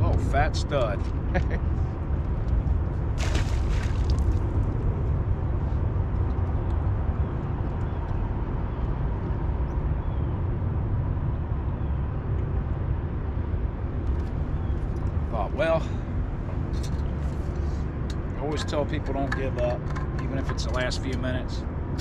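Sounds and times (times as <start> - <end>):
fishing boat engine rumble: 10.8 - 21.7.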